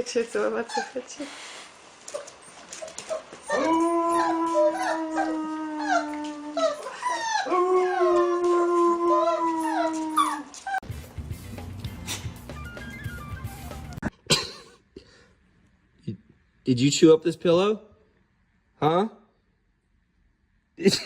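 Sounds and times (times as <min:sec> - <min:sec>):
dog howling: 0:03.5 - 0:10.8
music with low note: 0:10.8 - 0:14.1.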